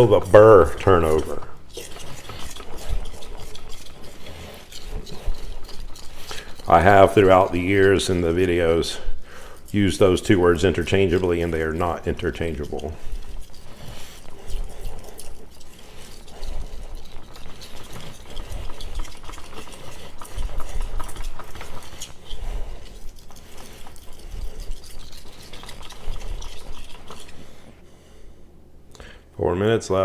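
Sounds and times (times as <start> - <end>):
knife scraping on whetstone: 0.0 - 27.9.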